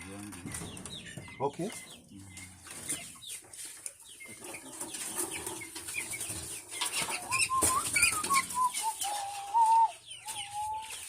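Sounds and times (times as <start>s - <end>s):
chickens clucking: 0.0s - 11.0s
wings flapping: 6.8s - 9.9s.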